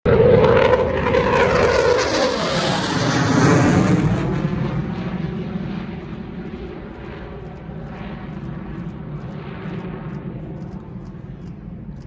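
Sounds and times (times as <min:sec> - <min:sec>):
fighter jet passing: 0:00.1 - 0:12.0.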